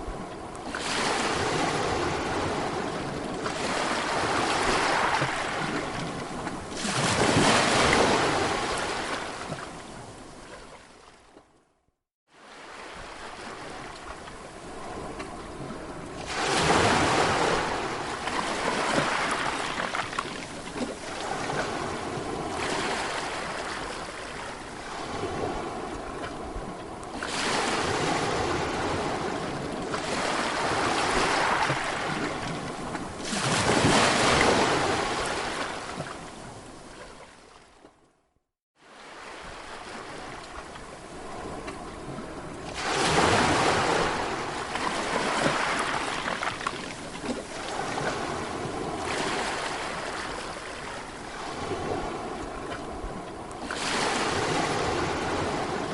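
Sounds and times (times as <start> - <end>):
sea waves breaking on shore: 0.0 - 11.5, 12.3 - 38.0, 38.8 - 55.9.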